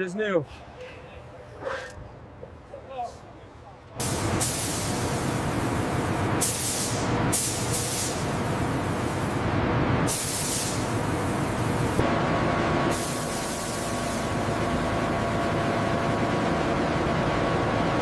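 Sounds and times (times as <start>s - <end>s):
paint spray gun hissing: 4.0s - 9.4s, 10.1s - 12.0s, 12.9s - 14.4s
machinery rumble: 4.0s - 18.0s.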